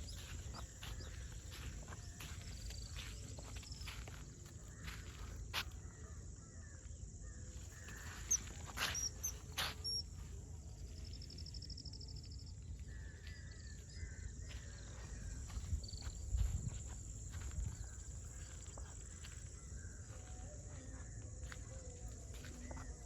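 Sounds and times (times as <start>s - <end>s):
birds chirping: 0.0s - 6.1s, 6.8s - 23.0s
bird rapid trill: 7.7s - 10.1s.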